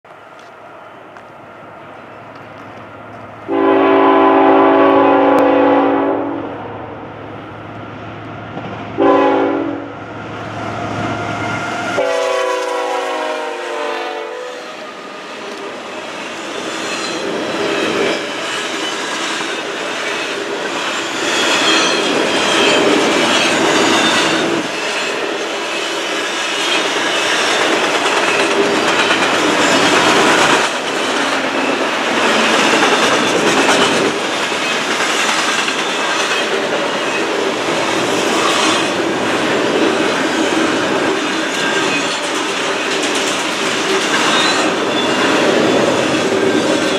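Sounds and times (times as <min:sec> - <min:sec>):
locomotive air horn blasts: 0:03.5 - 0:06.8, 0:09.0 - 0:10.0, 0:11.6 - 0:14.9
train wheels clattering: 0:15.5 - 0:46.9.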